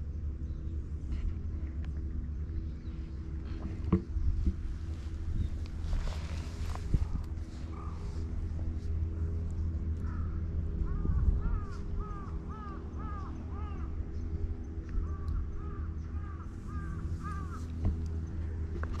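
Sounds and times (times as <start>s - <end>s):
steady low rumble: 0.0s - 19.0s
bird calling: 10.0s - 18.2s.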